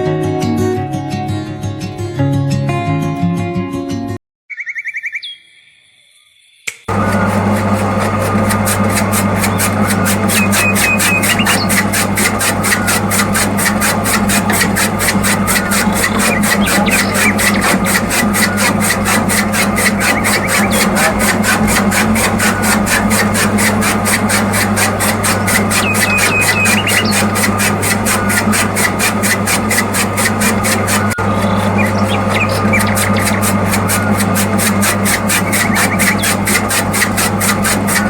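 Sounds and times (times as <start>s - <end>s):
rapid regular clicking: 6.9s - 38.0s
small electric motor humming: 6.9s - 38.0s
high squeal: 9.4s - 38.0s.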